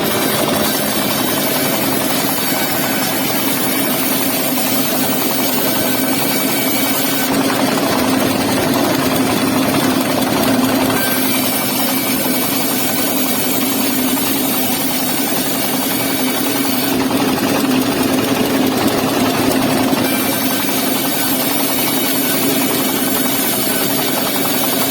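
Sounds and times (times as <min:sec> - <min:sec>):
engine-driven wood saw running: 0:00.0 - 0:24.9.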